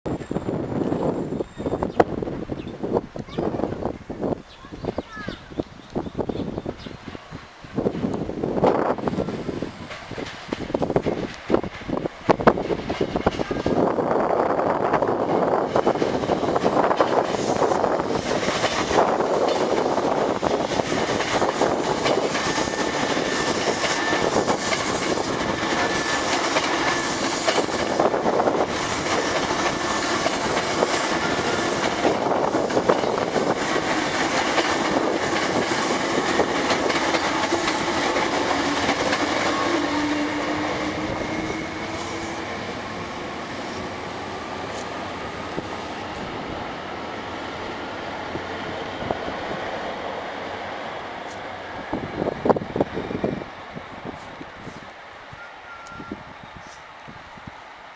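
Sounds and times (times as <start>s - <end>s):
train wheels clattering over rail joints: 7.7s - 14.1s, 14.9s - 46.5s.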